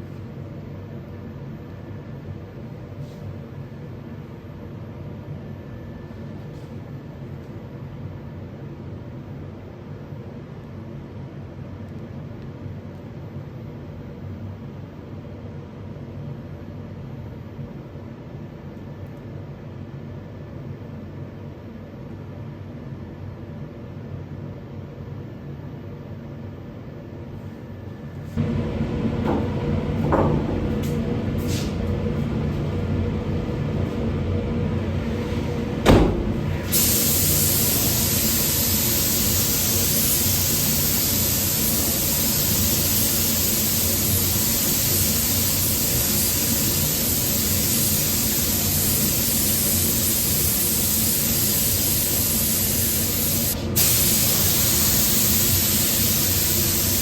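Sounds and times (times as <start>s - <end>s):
low hum: 28.4s - 36.7s
paint sprayer hissing: 28.4s - 57.0s.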